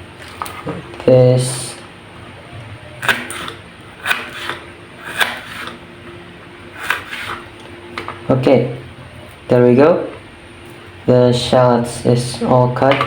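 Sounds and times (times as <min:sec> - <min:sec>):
knife slicing onto cutting board: 0:06.8 - 0:07.4.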